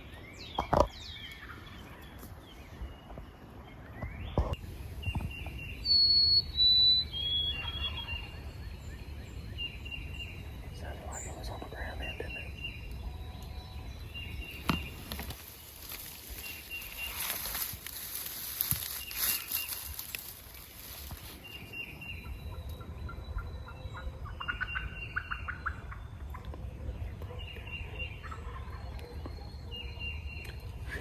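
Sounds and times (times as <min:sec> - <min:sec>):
turkey gobble: 0:23.4 - 0:26.5.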